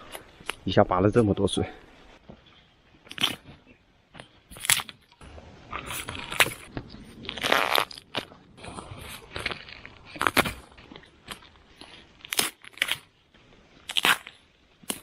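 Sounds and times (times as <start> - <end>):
bamboo shoots snapping: 3.1 - 3.4, 4.2 - 5.2, 9.1 - 13.1, 13.8 - 15.0.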